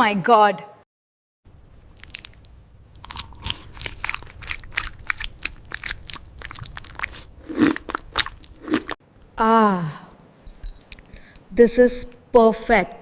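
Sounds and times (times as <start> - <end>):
person chewing crunchy food: 1.9 - 9.0.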